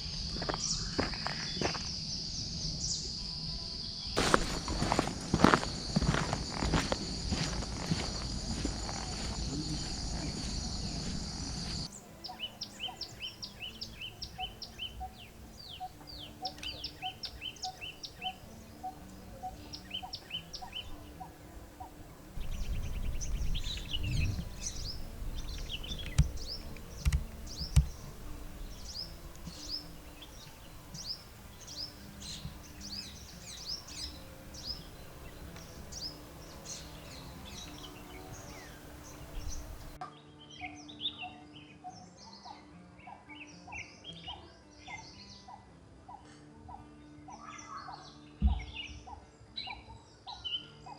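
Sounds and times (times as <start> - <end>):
birds chirping: 0.0 - 50.9
sharp thumps: 22.4 - 29.9
low rumble: 22.4 - 31.2.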